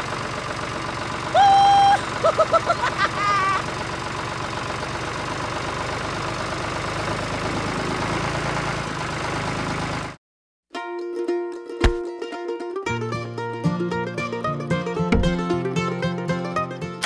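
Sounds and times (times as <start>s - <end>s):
tractor engine idling: 0.0s - 10.2s, 15.0s - 16.2s.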